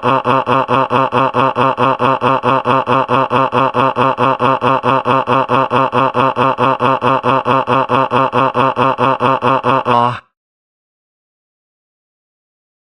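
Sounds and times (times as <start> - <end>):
cartoon character crying sobs: 0.0 - 10.3.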